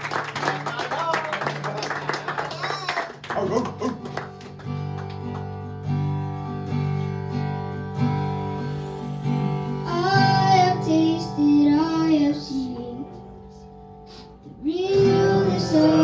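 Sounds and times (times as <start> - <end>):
acoustic guitar strumming: 3.2 - 16.0
person singing: 9.8 - 13.2, 14.5 - 16.0.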